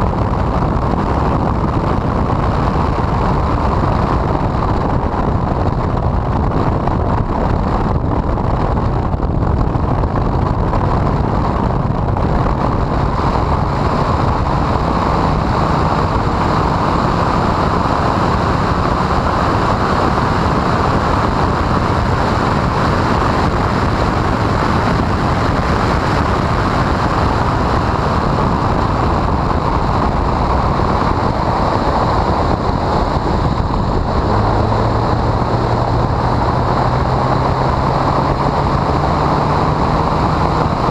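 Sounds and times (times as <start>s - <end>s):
car engine and road noise: 0.0s - 40.9s
wind buffeting microphone: 0.0s - 40.9s.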